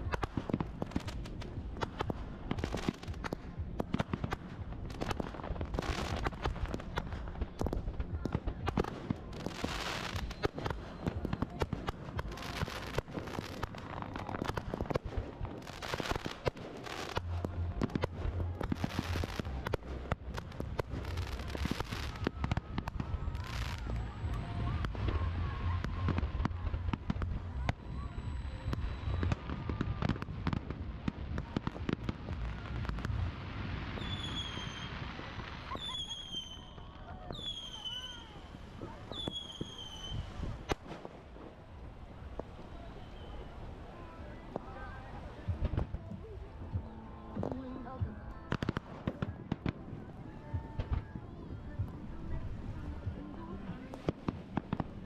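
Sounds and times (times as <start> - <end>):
firework bangs and crackling: 0.0 - 55.0
deep rumble: 17.1 - 34.0.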